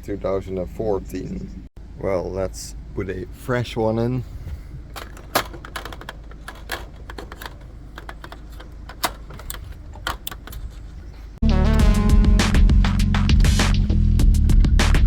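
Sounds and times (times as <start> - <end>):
small parts clicking and tapping: 5.0 - 11.2
loud music: 11.4 - 13.9.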